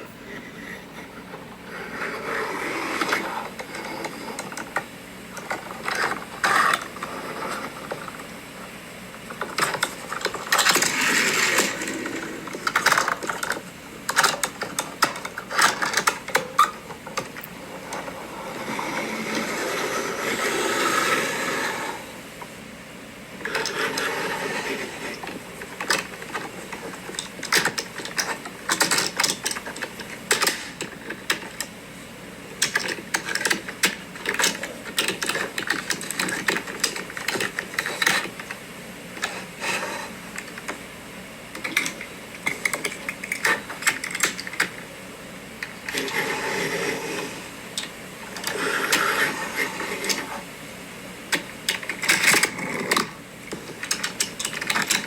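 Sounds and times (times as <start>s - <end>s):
toy scraping or rolling: 1.7s - 4.8s, 9.5s - 22.1s, 23.4s - 31.6s, 45.6s - 50.5s
plastic toy parts clacking: 23.5s - 31.7s, 32.6s - 38.6s, 41.6s - 44.8s, 51.3s - 55.0s.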